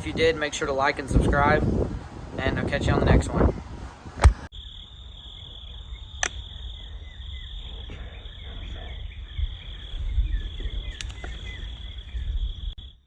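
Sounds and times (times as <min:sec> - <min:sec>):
wind rumble on microphone: 0:00.0 - 0:04.5, 0:05.4 - 0:13.0
high-pitched insect trill: 0:04.5 - 0:13.0
sharp clicks: 0:11.0 - 0:11.4.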